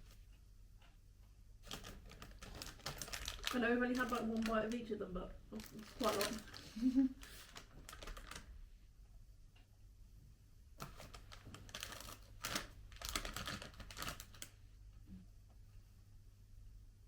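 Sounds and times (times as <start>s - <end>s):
chocolate wrappers crinkling: 1.6s - 8.6s, 10.8s - 14.6s.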